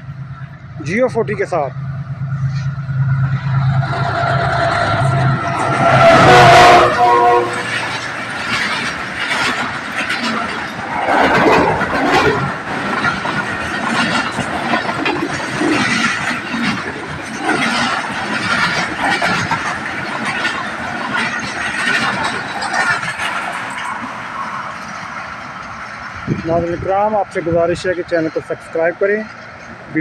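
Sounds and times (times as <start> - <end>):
locomotive engine hum: 0.0 - 30.0
train coaches rattling: 0.0 - 30.0
wheels clicking over rail joints: 0.0 - 30.0
train horn blast: 4.2 - 7.9.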